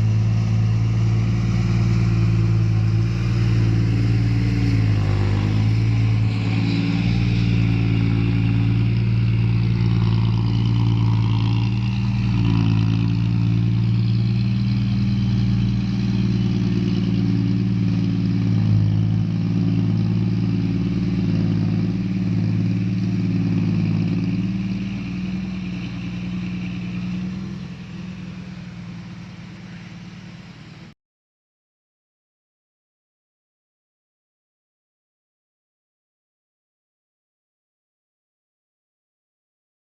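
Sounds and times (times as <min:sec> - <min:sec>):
heavy vehicle engine running: 0:00.0 - 0:31.0.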